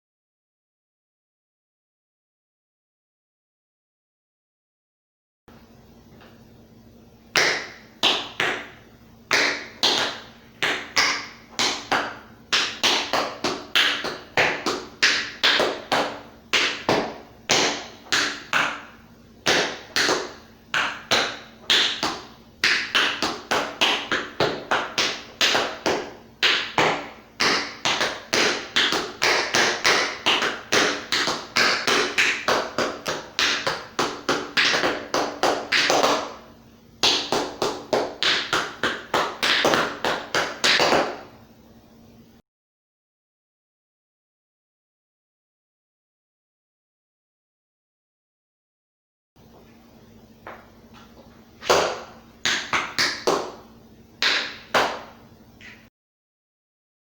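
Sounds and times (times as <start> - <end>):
tap shoes on hard floor: 9.3 - 18.9, 19.5 - 36.4, 37.0 - 41.2, 50.4 - 53.6.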